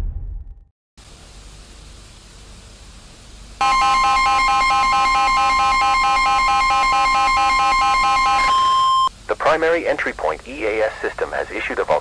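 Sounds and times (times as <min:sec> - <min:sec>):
electronic alarm tone: 0:03.6 - 0:09.1
tv static hiss: 0:09.1 - 0:12.0.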